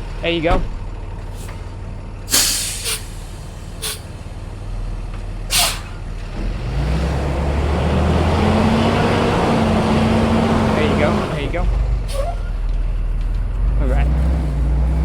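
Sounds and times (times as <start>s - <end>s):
truck engine revving: 1.2s - 15.0s
short air hisses: 2.3s - 4.1s, 5.5s - 6.0s.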